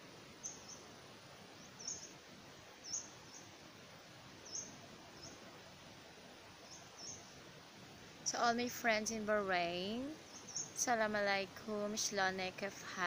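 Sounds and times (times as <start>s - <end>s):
faint background noise: 0.0s - 13.0s
bird chirping: 0.4s - 0.9s, 1.6s - 2.2s, 2.8s - 3.6s, 4.4s - 5.4s, 6.6s - 7.4s, 10.0s - 11.0s.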